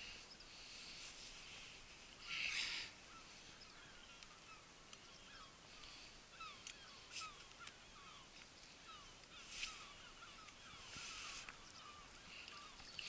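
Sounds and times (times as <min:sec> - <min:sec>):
faint bird chirps: 0:02.2 - 0:13.0
light clicks: 0:06.5 - 0:09.7
brief rustle: 0:09.4 - 0:11.7.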